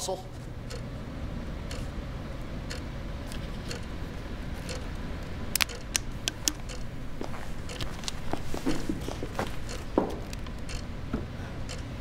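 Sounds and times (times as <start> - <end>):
faint ticking: 0.4 - 12.0
footsteps on a stage: 7.2 - 10.3.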